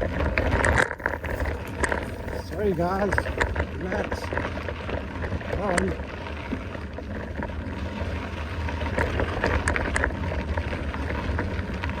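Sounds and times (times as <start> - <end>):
sharp clicks and rattles: 0.0 - 7.8
bike rolling on dirt trail: 0.0 - 12.0
wind buffeting microphone: 0.0 - 12.0.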